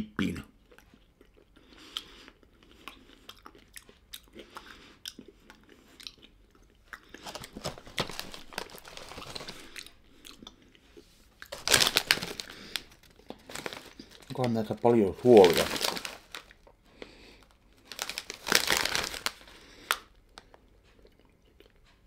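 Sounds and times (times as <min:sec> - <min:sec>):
crunching and chewing crackers: 0:00.5 - 0:22.0
snack bag crinkling: 0:00.8 - 0:21.8.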